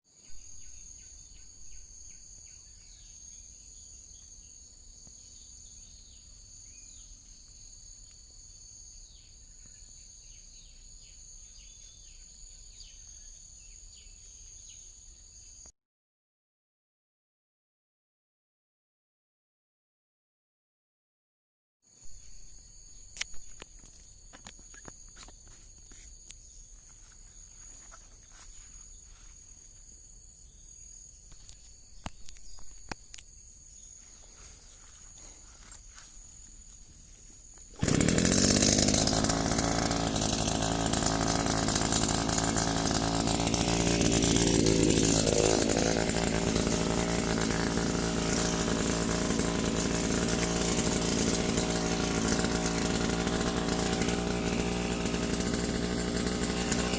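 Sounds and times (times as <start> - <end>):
brush cutter engine running: 37.6 - 56.9.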